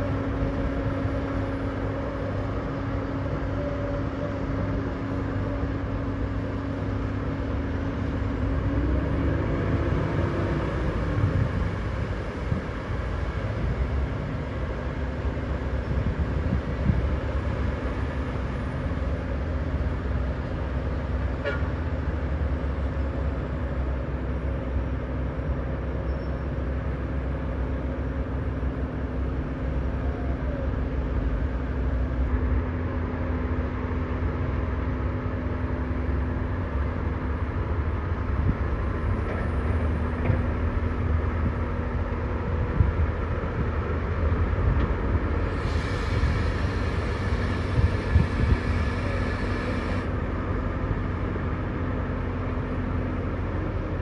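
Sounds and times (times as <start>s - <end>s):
heavy diesel engines droning: 0.0s - 54.0s.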